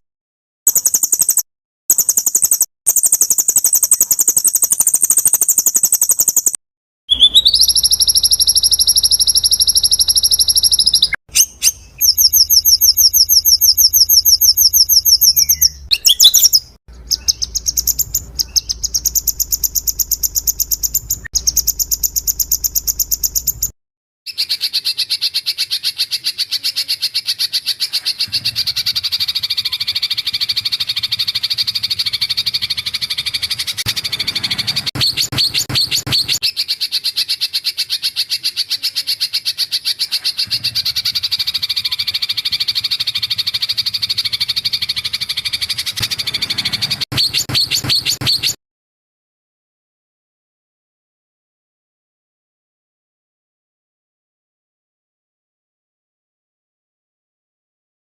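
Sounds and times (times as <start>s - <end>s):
fast trill of high chirps: 0.7s - 23.7s, 27.8s - 36.8s, 40.0s - 48.6s.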